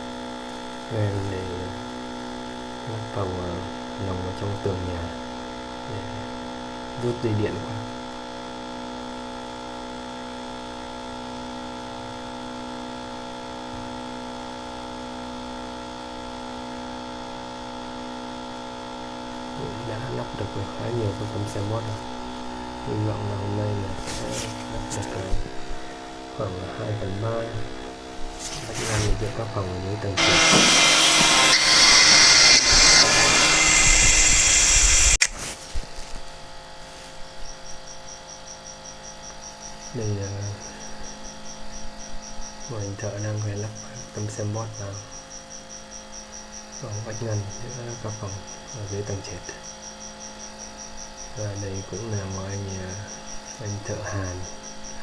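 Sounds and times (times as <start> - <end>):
power tool whirring: 0.0 - 40.0
electrical hum: 0.0 - 55.0.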